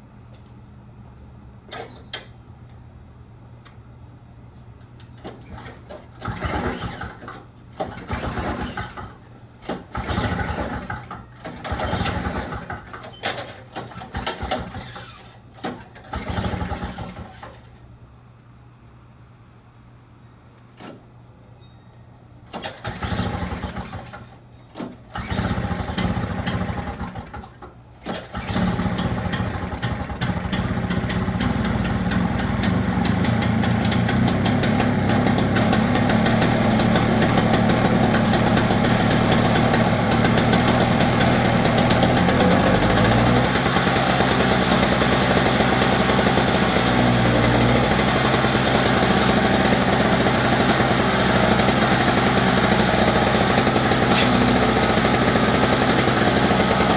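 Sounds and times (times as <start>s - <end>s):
two-stroke engine pull-started: 5.2s - 17.8s, 22.5s - 56.9s
engine sputtering then idling high: 28.3s - 56.9s.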